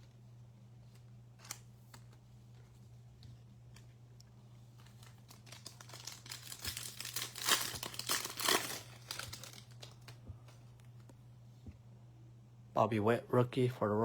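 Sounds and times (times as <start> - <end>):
low electrical hum: 0.0 - 14.0
foil wrapper tearing and crinkling: 4.8 - 10.2.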